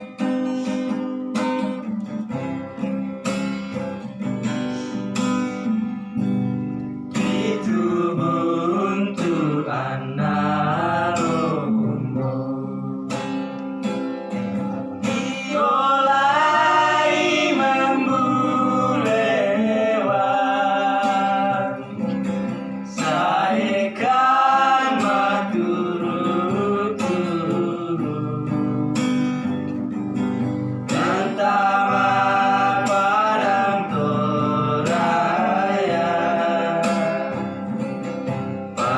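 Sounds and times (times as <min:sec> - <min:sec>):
strummed acoustic guitar: 0:00.0 - 0:38.9
person singing: 0:07.1 - 0:13.4, 0:14.9 - 0:29.0, 0:30.9 - 0:37.7.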